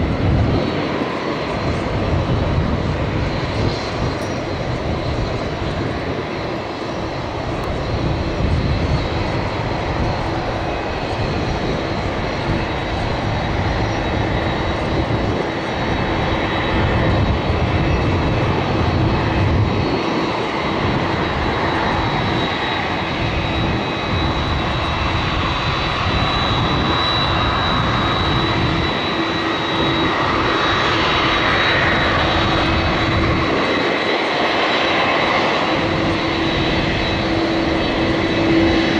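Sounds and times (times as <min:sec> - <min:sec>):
jet engines roaring with whine: 0:00.0 - 0:38.9.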